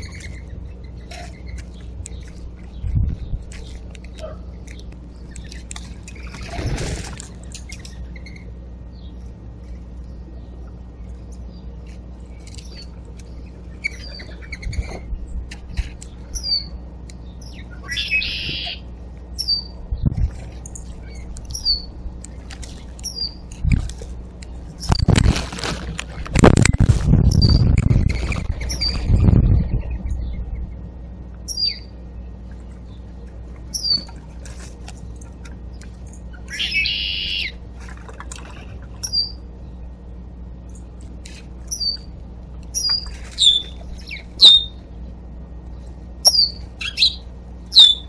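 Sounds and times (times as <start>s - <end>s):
short high bird chirp: 17.5s - 18.8s, 46.2s - 48.0s
rustling scuffle: 24.9s - 27.4s.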